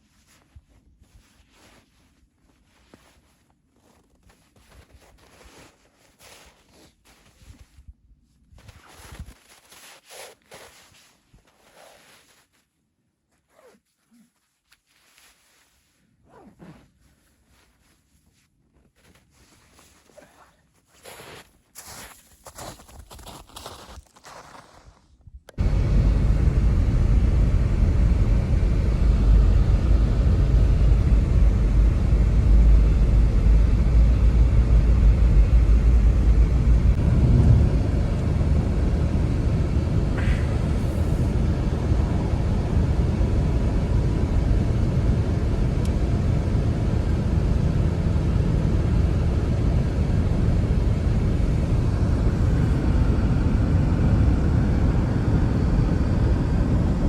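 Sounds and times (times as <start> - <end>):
blizzard wind rushing: 25.6 - 57.0.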